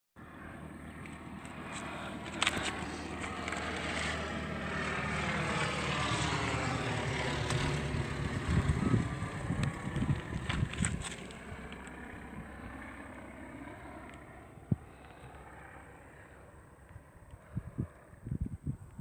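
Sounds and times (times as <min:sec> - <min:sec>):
propeller plane engine droning: 0:00.2 - 0:19.0
wind buffeting microphone: 0:06.1 - 0:12.6, 0:14.6 - 0:15.0, 0:17.3 - 0:19.0.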